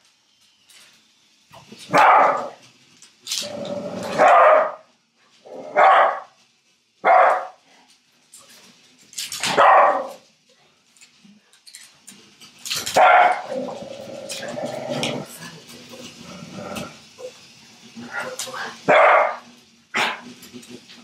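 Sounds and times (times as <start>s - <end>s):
dog barking: 1.9s - 2.6s, 4.2s - 4.8s, 5.7s - 6.3s, 7.0s - 7.6s, 9.5s - 10.2s, 13.0s - 13.5s, 18.9s - 19.4s.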